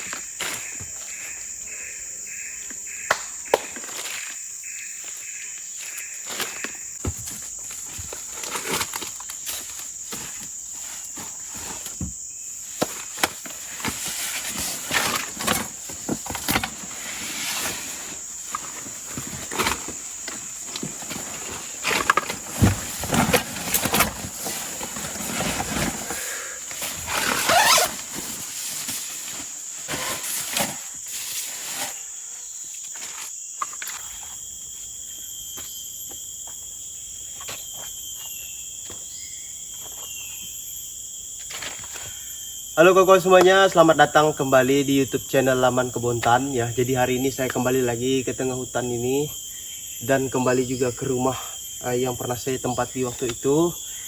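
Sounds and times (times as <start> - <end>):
insect drone: 0.0 - 54.0
rustling and crunching undergrowth: 3.5 - 33.9.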